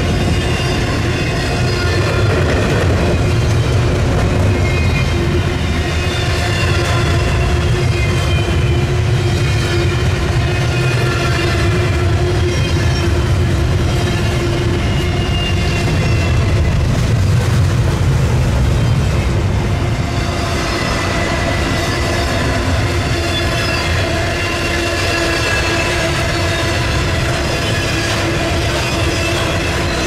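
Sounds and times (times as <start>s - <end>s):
steel wheels rumbling on rail: 0.0s - 30.0s
high-pitched wheel squeal: 20.2s - 30.0s.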